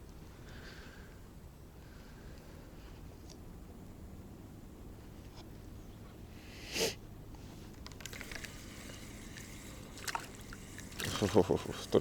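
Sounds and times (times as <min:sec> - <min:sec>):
person sniffing: 0:06.5 - 0:07.0
small clicks: 0:07.7 - 0:08.6.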